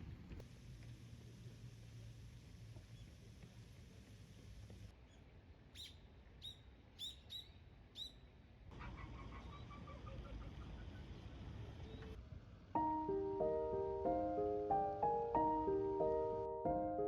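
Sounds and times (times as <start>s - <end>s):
small bird chirping: 5.8s - 8.3s
soft piano music: 12.8s - 17.0s.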